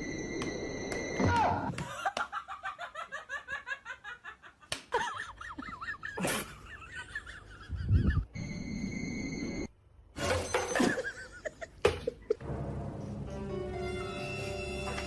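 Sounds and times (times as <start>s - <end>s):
person laughing: 1.8s - 8.3s.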